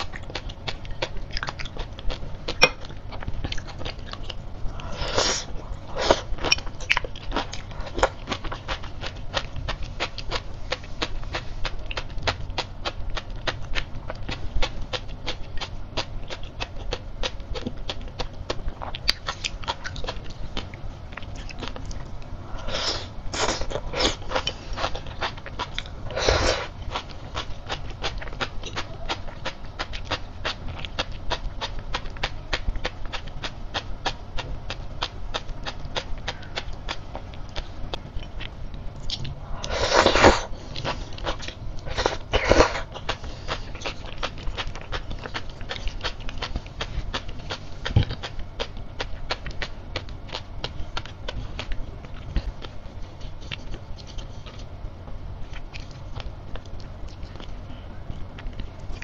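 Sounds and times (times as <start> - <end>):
chewing with crisp pops: 0.0 - 22.3, 23.3 - 59.0.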